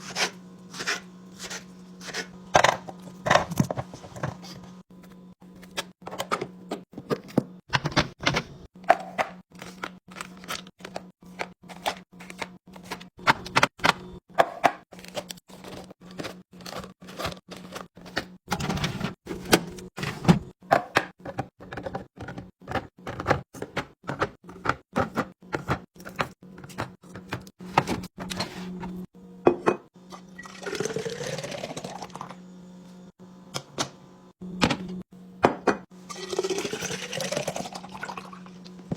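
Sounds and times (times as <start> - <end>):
refrigerator hum: 0.0 - 38.9
liquid pouring into container: 30.4 - 32.3, 36.1 - 38.6.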